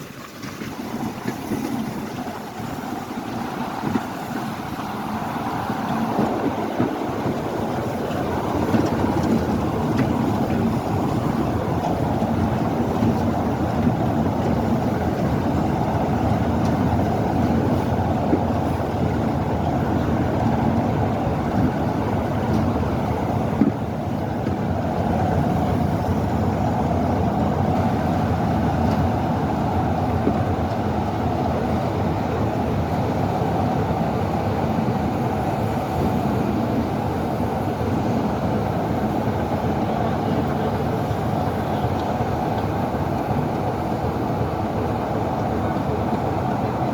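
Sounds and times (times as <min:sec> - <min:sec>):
train rumbling: 0:00.0 - 0:46.9.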